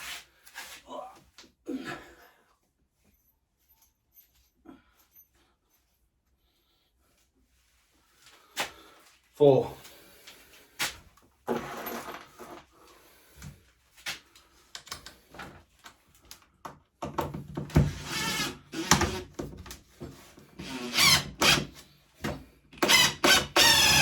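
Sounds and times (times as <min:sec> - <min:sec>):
tools and metal parts clattering: 0:11.5 - 0:12.6.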